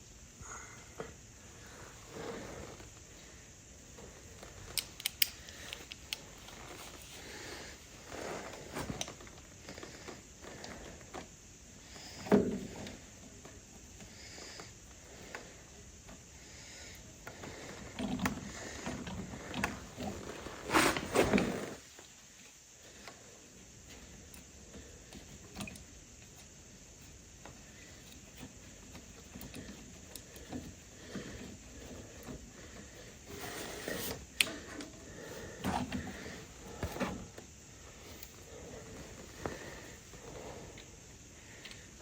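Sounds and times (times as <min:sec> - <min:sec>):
hands working with tools and parts: 0:04.4 - 0:07.0.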